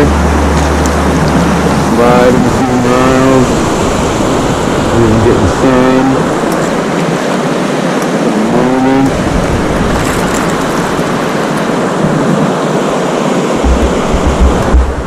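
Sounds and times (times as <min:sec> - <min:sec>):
whitewater rushing: 0:00.0 - 0:15.0.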